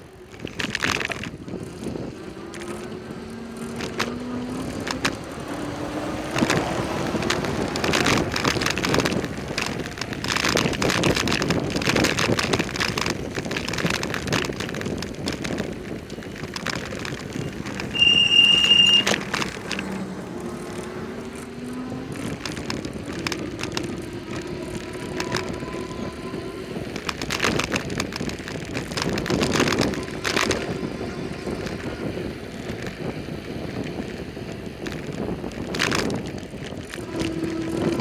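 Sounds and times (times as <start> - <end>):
motor vehicles passing: 0.0 - 38.0
wind and road noise: 0.0 - 38.0
loud high-pitched squeal: 17.4 - 22.0.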